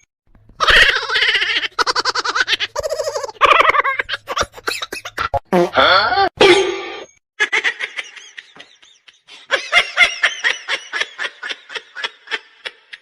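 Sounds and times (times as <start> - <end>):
person laughing hard: 7.4 - 13.0.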